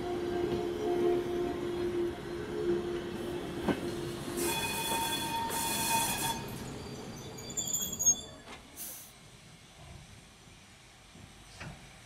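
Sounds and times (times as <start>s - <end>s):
train coaches rolling on track: 0.0s - 10.1s.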